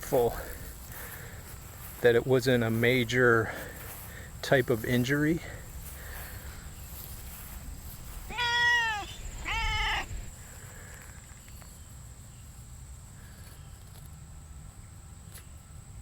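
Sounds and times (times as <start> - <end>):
cat meowing: 8.3 - 10.3.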